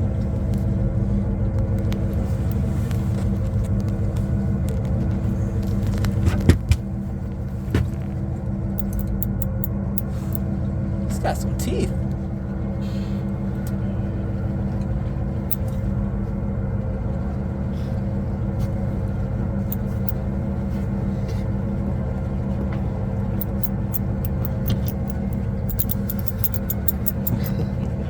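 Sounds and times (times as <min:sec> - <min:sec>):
boat engine humming: 0:00.0 - 0:28.0
faint high clicks: 0:08.8 - 0:10.4, 0:23.4 - 0:27.5.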